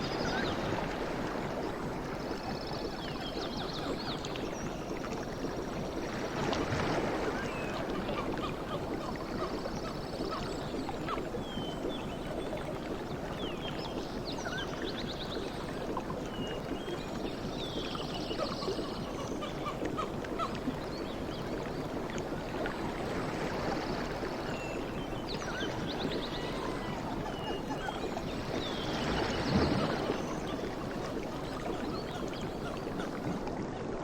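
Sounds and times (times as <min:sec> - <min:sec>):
sea waves washing: 0:22.4 - 0:33.4.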